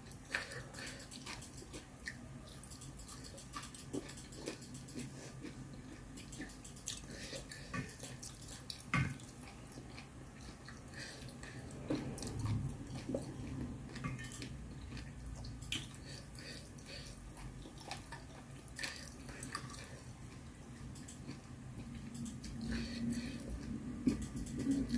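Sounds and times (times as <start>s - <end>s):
person chewing: 0.0s - 24.9s
utensils clicking against bowl: 6.2s - 7.1s, 24.1s - 24.9s.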